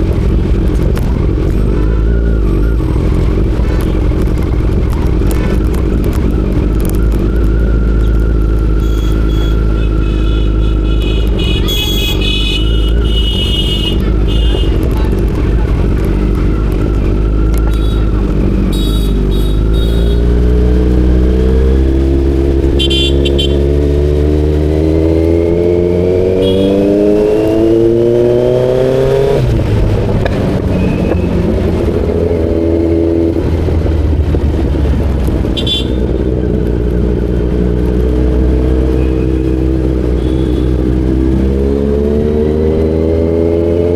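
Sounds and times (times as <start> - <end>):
motorcycle engine accelerating: 0.0 - 43.9
short high-pitched beeps: 8.8 - 9.6.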